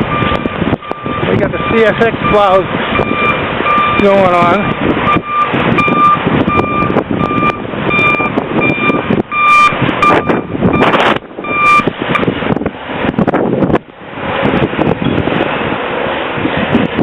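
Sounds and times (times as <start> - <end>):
engine noise: 0.0 - 17.0
wind noise: 0.0 - 17.0
backup alarm beeping: 0.1 - 12.3.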